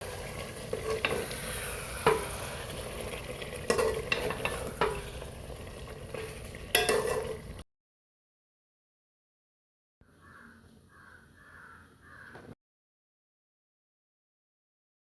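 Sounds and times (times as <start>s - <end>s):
meat sizzling in a pan: 0.0s - 7.6s
utensil scraping against pan: 0.2s - 5.3s, 6.1s - 7.4s.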